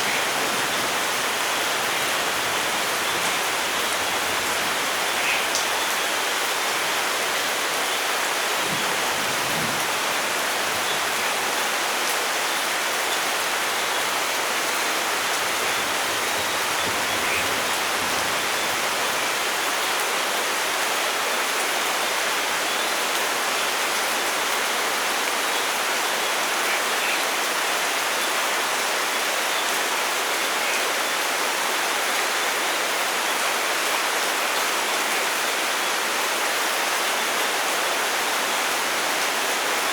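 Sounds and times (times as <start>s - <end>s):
individual raindrops: 0.0s - 21.7s
heavy rain hissing: 0.0s - 25.3s.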